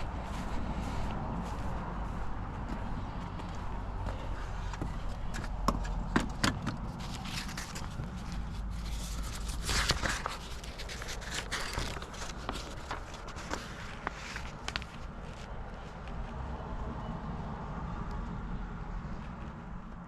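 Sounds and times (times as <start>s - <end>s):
footsteps on dirt: 0.0s - 6.1s.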